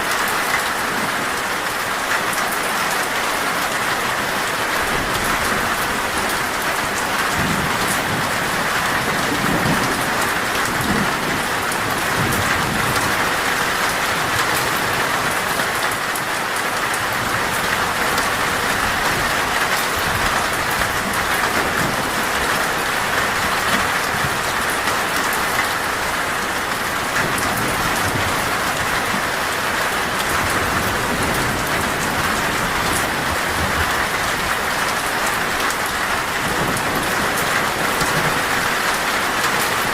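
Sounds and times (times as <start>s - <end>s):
heavy rain on a metal roof: 0.0s - 39.9s
thunder rumbling: 4.9s - 15.4s, 17.2s - 39.9s.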